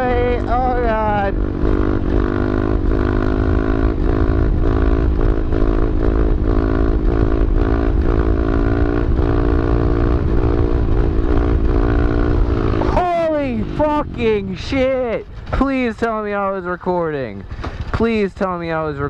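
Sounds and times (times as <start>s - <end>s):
motorbike engine at high revs: 0.0s - 15.4s
wind rumble on microphone: 0.0s - 16.6s.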